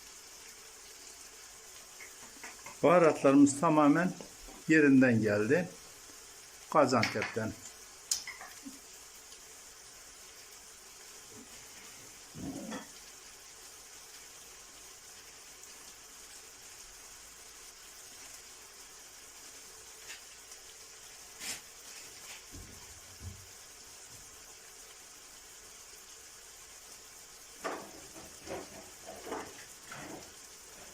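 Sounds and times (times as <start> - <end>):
stew sizzling: 0.0 - 30.9.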